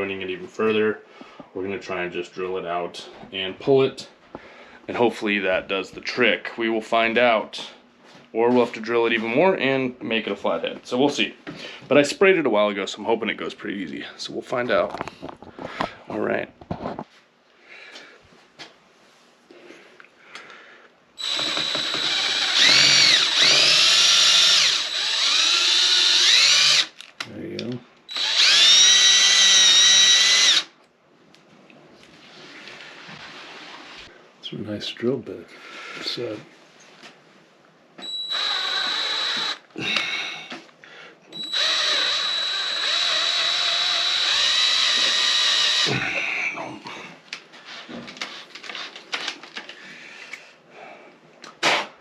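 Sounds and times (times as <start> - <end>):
electric drill drilling metal: 21.2 - 27.0, 28.1 - 30.8, 38.0 - 39.7, 41.3 - 45.9.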